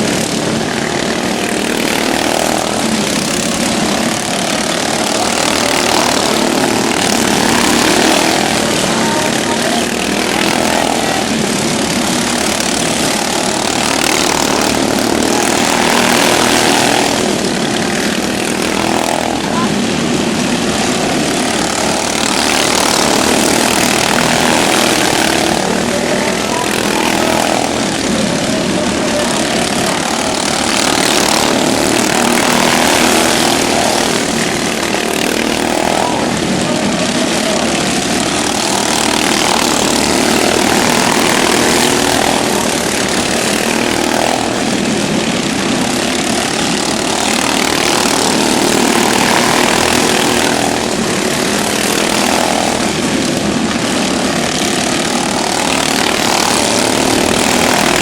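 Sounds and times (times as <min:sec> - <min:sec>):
racing lawn mower engines passing: 0:00.0 - 0:58.0.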